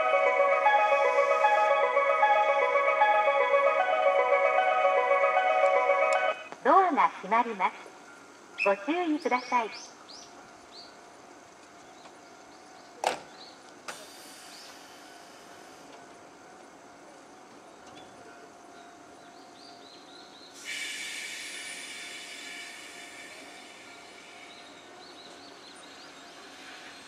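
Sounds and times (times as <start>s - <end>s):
steady hiss: 0.6s - 2.1s, 13.5s - 17.8s, 20.4s - 27.0s
train doors shutting thud: 13.0s - 14.9s.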